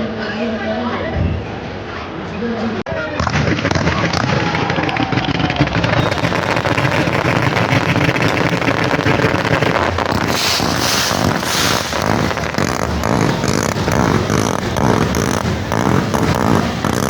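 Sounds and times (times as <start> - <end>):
bonfire roaring and crackling: 4.8 - 17.0
fire hissing surges: 6.2 - 16.8.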